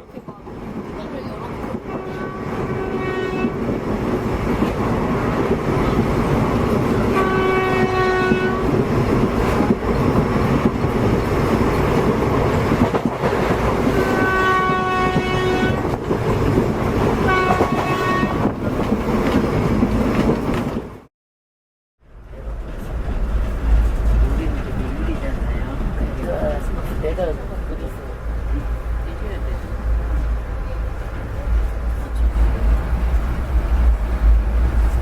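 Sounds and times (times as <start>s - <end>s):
train rumble and clatter: 0.0s - 21.1s, 22.0s - 35.0s
train horn blasts: 1.8s - 3.7s, 7.0s - 8.8s, 13.9s - 16.0s, 17.2s - 18.6s.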